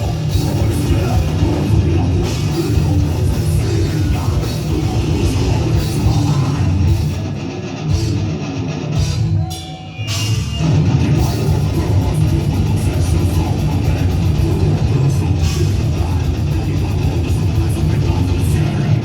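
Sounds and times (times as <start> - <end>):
heavy metal band playing: 0.0 - 19.0.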